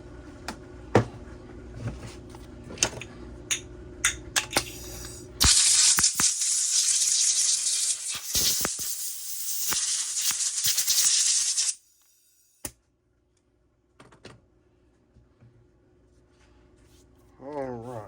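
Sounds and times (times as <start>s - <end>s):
aerosol spray hissing: 4.7s - 12.5s.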